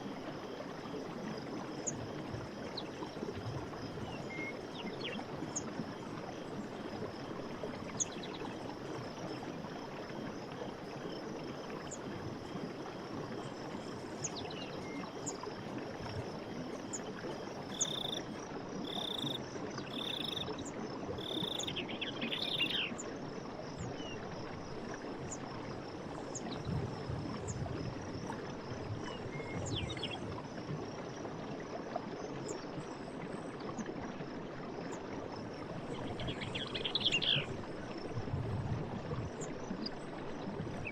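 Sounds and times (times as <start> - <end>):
insects trilling: 0.4 - 23.0.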